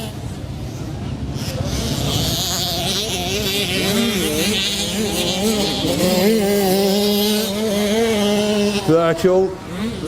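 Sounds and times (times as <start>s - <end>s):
motocross bike engines revving: 0.0s - 10.0s.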